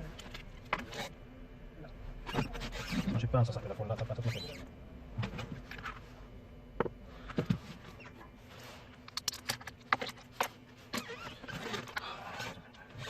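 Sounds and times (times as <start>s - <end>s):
small hard parts clicking and tapping: 9.0s - 10.6s.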